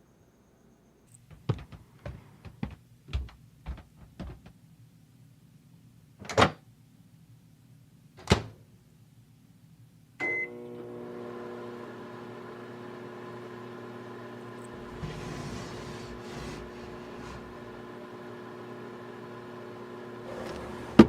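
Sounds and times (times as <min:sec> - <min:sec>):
microwave beep: 0:10.2 - 0:10.8
microwave humming: 0:10.2 - 0:21.0.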